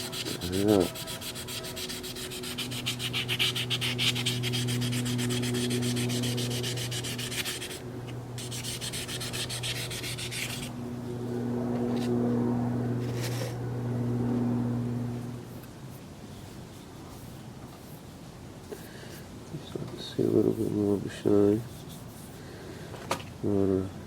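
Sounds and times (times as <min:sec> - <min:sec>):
sanding pad rasping on plastic: 0:00.0 - 0:07.8, 0:08.4 - 0:10.7
steady low hum: 0:00.0 - 0:22.4.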